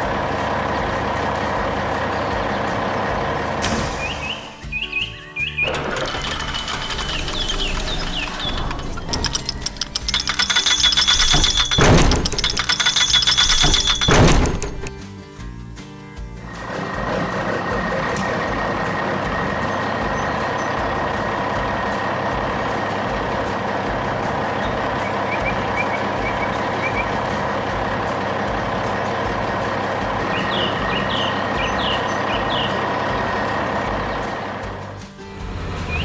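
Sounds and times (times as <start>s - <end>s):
heavy vehicle engine running: 0.0s - 15.6s, 16.2s - 36.0s
bird chirps: 3.6s - 5.8s, 6.7s - 14.5s, 24.4s - 27.9s, 30.2s - 33.4s.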